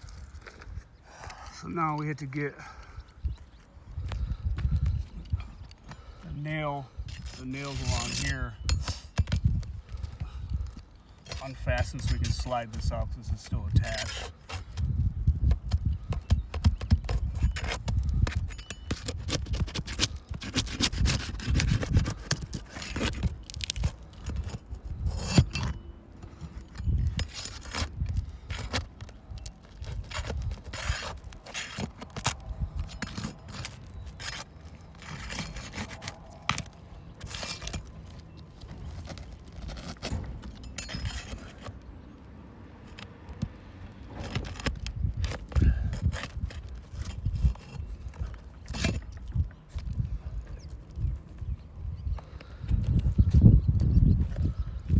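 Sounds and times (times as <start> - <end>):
metal tool scraping shingles: 5.4 - 10.2, 11.1 - 14.8, 16.3 - 41.9, 44.1 - 50.0.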